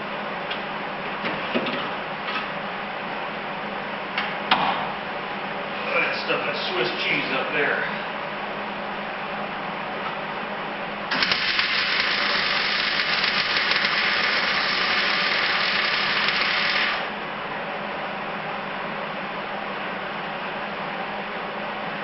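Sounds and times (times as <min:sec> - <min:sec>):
low background hum: 0:00.0 - 0:22.0
welder crackling hiss: 0:11.1 - 0:17.1.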